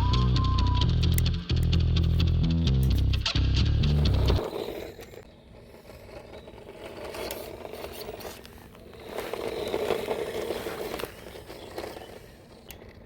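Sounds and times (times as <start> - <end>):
scraping and crackling: 2.8 - 13.0
rc car motor whirring: 3.8 - 13.0.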